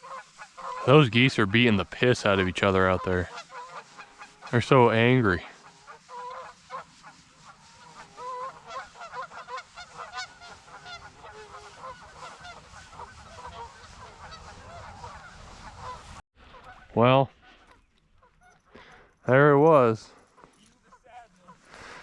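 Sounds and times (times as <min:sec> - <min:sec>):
geese honking harshly: 0:00.0 - 0:17.8.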